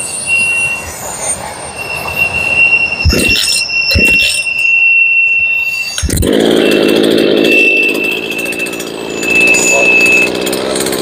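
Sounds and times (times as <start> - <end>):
chainsaw high whine: 6.0 - 11.0
lower fuller engine note: 6.0 - 11.0.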